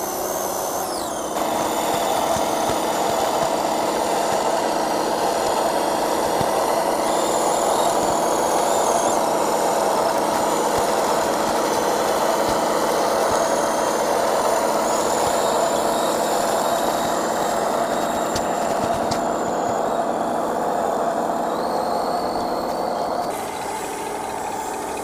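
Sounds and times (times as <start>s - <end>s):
toy truck motor whining: 0.0s - 25.0s
sharp clicks: 0.3s - 19.9s.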